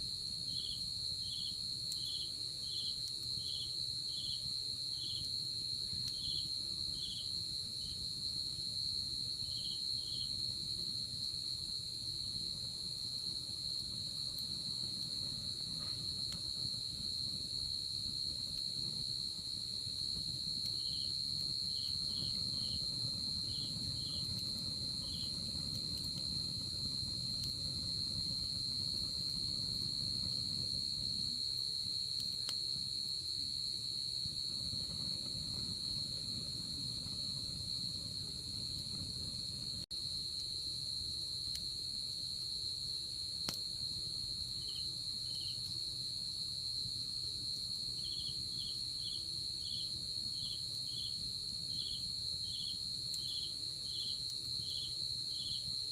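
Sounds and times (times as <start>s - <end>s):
campfire hissing and popping: 0.0s - 55.9s
insect high-pitched trill: 48.0s - 55.9s.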